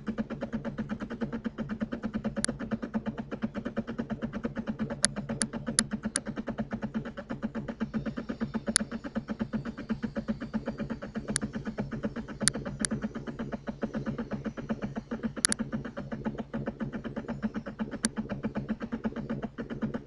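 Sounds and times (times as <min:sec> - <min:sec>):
small machine pulsing: 0:00.0 - 0:20.0
sharp clicks: 0:15.4 - 0:15.6.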